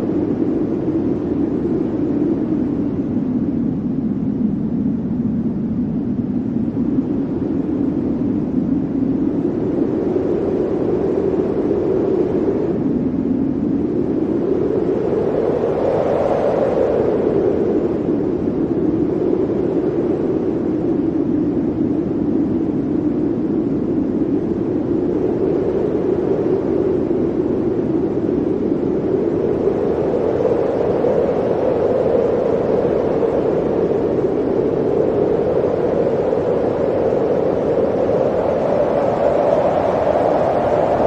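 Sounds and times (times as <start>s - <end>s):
howling blizzard wind: 0.0s - 41.0s.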